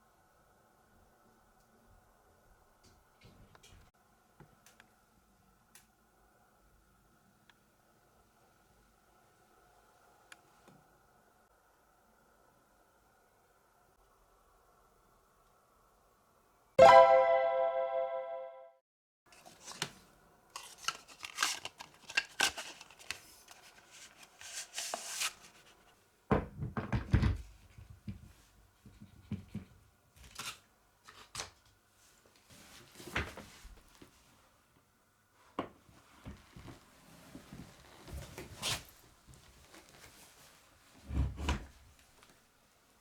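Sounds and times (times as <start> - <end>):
packaging rustling: 20.6 - 25.7.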